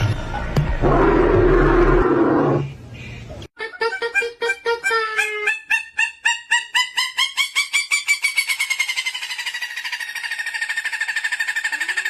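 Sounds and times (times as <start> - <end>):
bird calling in rapid notes: 3.6 - 12.0.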